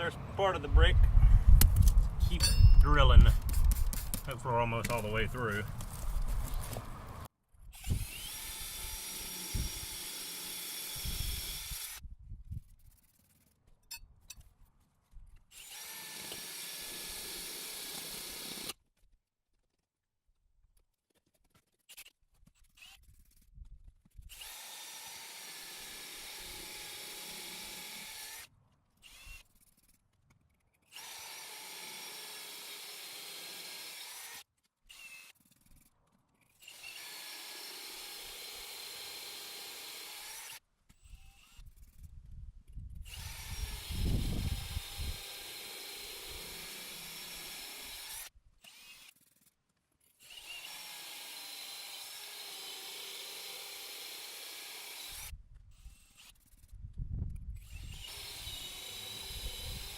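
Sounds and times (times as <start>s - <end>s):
power drill boring into brick: 7.8s - 12.0s, 15.5s - 18.8s, 24.3s - 29.5s, 30.9s - 35.4s, 36.6s - 42.0s, 43.1s - 49.5s, 50.2s - 56.6s, 57.6s - 59.9s.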